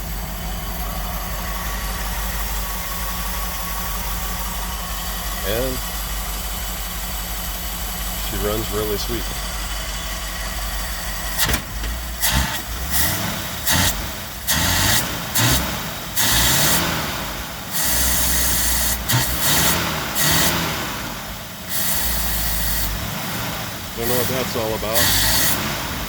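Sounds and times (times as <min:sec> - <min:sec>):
engine revving: 0:07.9 - 0:26.0
engine cracks: 0:08.2 - 0:16.9.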